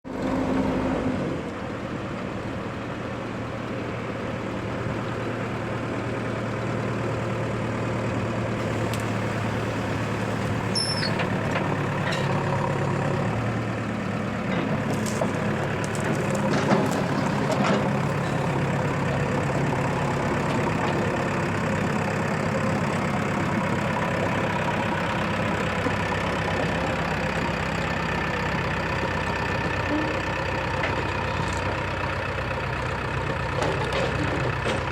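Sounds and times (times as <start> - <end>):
diesel engines running: 0.1 - 34.9
sharp knocks and clanks: 11.0 - 12.5, 14.5 - 18.6.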